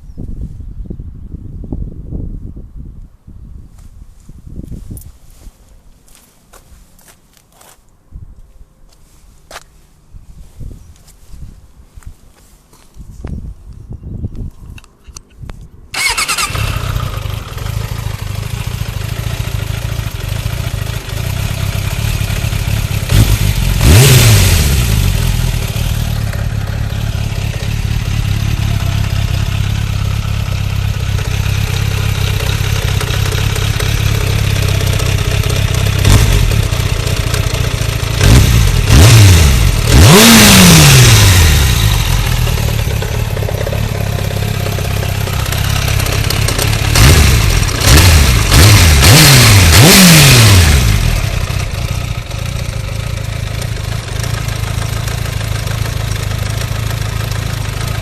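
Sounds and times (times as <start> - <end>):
motorcycle throttle blips: 13.7 - 58.0
motorcycle engine idling: 16.0 - 58.0.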